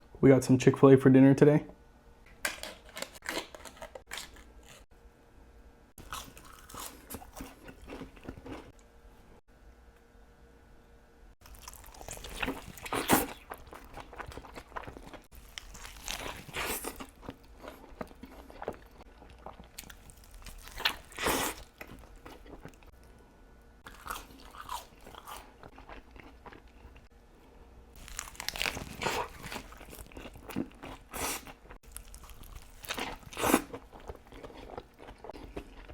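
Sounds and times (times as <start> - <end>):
person biting and chewing food: 2.4 - 4.8, 6.0 - 8.8, 11.4 - 22.9, 23.9 - 27.1, 28.0 - 35.9.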